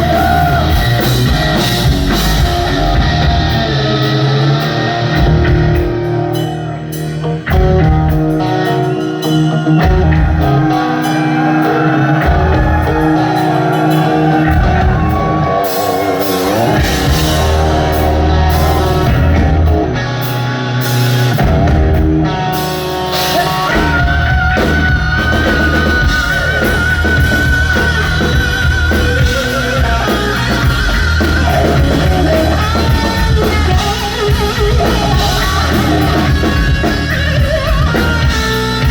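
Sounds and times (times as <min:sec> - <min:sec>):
distorted electric guitar: 0:00.0 - 0:38.9
drum kit: 0:00.0 - 0:38.9
wavering high guitar note: 0:13.0 - 0:20.2.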